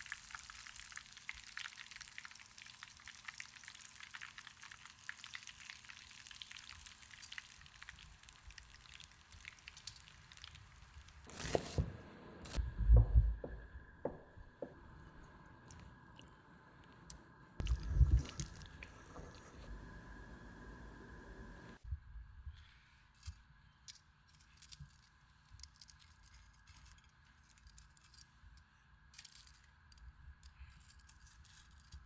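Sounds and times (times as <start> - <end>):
deep-frying oil crackle: 0.0 - 11.4.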